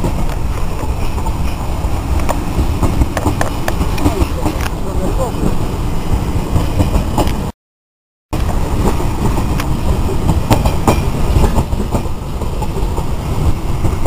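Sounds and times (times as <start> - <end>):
train rumbling past: 0.0 - 7.5, 8.4 - 14.0
wheels clacking over rail joints: 0.0 - 7.5, 8.4 - 14.0.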